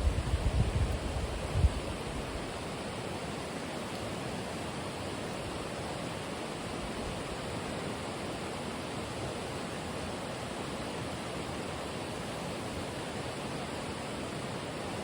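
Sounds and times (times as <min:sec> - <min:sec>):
wind rumble on microphone: 0:00.0 - 0:02.5.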